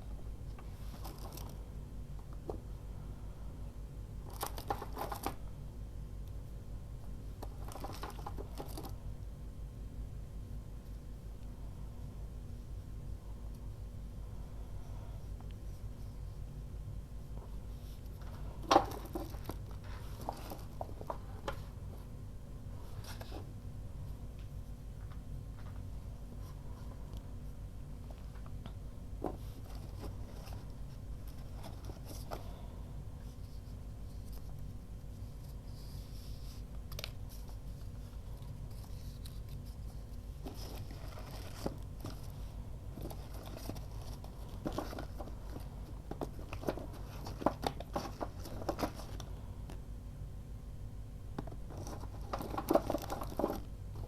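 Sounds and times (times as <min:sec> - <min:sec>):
steady low hum: 0:00.0 - 0:54.0
craft materials rustling: 0:17.7 - 0:21.8, 0:29.2 - 0:49.4, 0:51.4 - 0:54.0.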